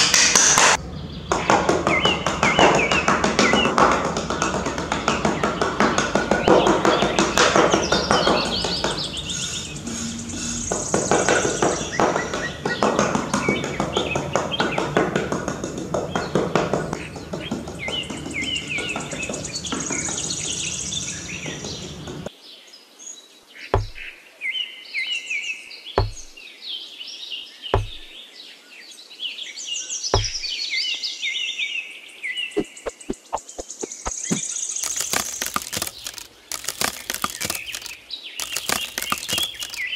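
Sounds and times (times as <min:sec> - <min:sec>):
birds chirping: 0:00.7 - 0:22.3, 0:23.6 - 0:24.2, 0:27.4 - 0:28.4, 0:29.8 - 0:31.0, 0:32.2 - 0:39.9
dull thunks: 0:23.8 - 0:24.1, 0:26.0 - 0:26.4, 0:27.8 - 0:28.1, 0:30.2 - 0:30.5.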